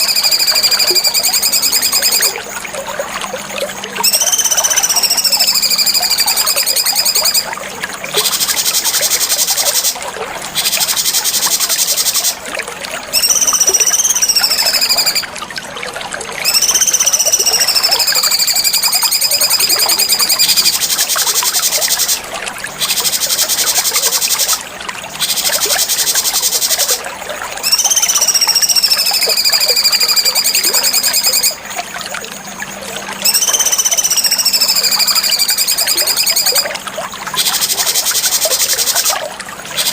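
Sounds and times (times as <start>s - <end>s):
bird song with whistled notes: 0.0s - 2.4s, 4.0s - 7.5s, 13.1s - 15.3s, 16.4s - 21.0s, 27.6s - 31.6s, 33.2s - 36.6s.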